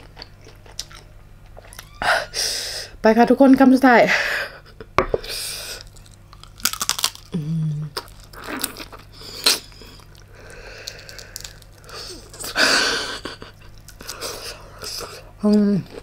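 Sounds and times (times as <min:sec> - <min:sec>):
person humming: 0:07.3 - 0:08.0.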